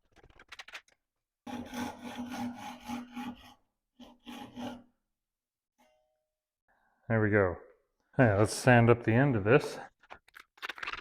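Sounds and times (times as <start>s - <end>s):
hand saw cutting wood: 1.4s - 4.9s.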